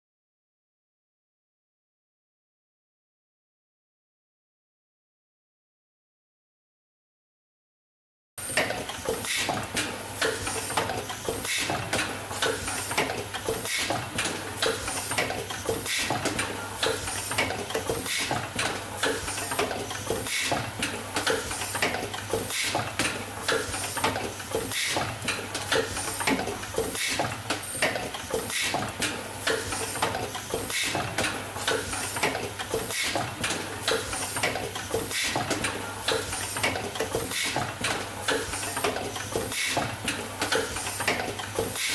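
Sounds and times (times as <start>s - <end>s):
clatter of machine clicks and knocks: 8.4s - 41.9s.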